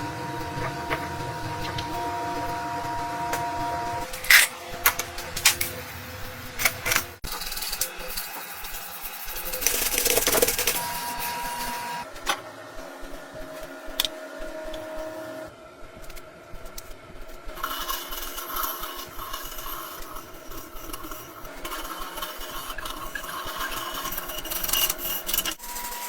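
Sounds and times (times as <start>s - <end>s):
steady machine whine: 0.0s - 8.0s.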